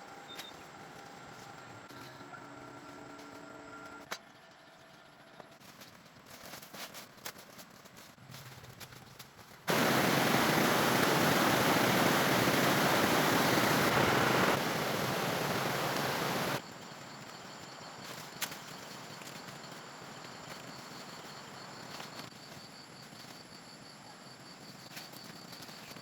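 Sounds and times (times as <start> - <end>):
loud steady rushing noise: 9.7 - 16.6.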